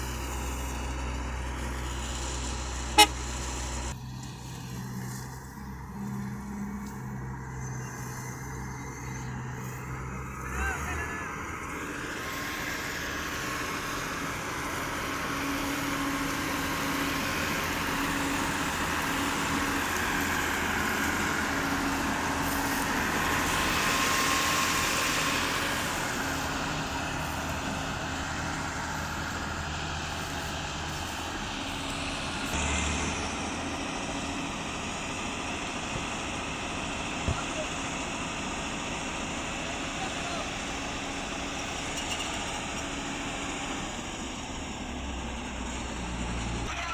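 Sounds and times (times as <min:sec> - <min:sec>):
combine harvester machinery running: 0:00.0 - 0:46.9.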